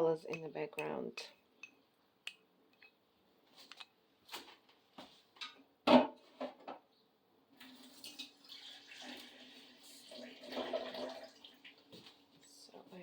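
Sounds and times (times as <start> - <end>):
liquid paint pouring: 7.6 - 11.7.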